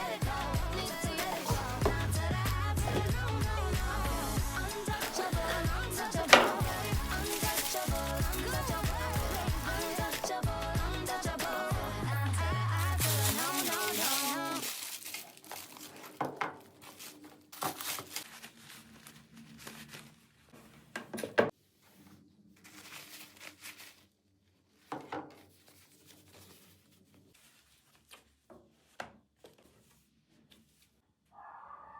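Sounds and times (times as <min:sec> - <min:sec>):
pop music: 0:00.0 - 0:14.7
packaging crinkling and rustling: 0:04.7 - 0:10.4, 0:13.1 - 0:21.0, 0:21.9 - 0:31.0.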